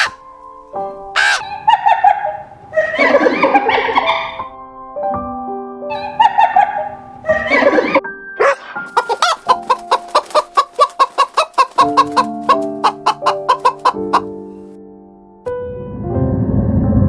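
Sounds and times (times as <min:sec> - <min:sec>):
background music: 0:00.0 - 0:17.0
chicken clucking: 0:01.2 - 0:04.4, 0:05.9 - 0:14.4.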